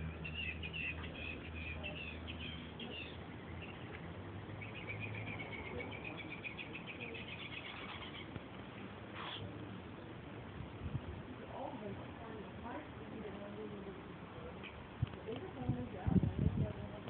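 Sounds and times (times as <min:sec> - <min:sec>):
small bird twittering: 0:00.0 - 0:08.5
steady low hum: 0:00.0 - 0:17.0.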